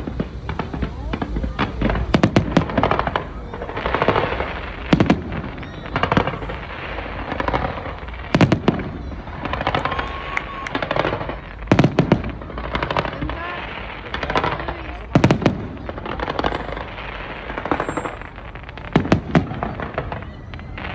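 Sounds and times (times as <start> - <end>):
fireworks crackling: 0.0 - 20.9
firework shells bursting: 9.4 - 20.9.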